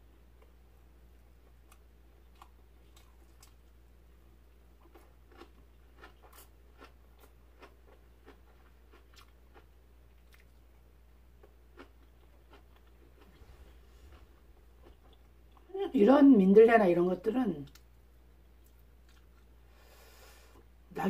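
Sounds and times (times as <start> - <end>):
faint chewing: 1.4 - 3.8, 4.8 - 10.8, 11.4 - 15.7, 17.6 - 19.6.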